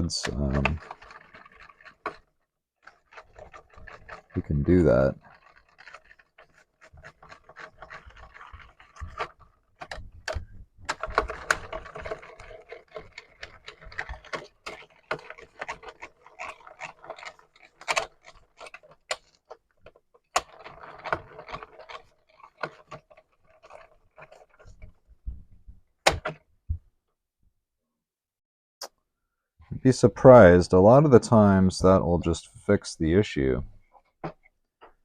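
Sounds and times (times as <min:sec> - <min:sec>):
scrubbing on circuit board: 0:00.0 - 0:25.0.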